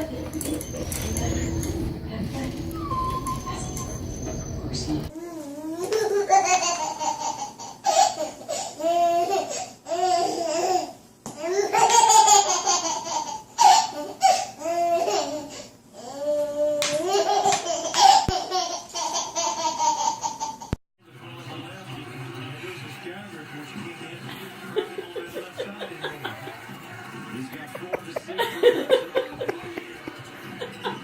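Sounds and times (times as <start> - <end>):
baby laughing: 5.8 - 16.2, 16.8 - 20.8.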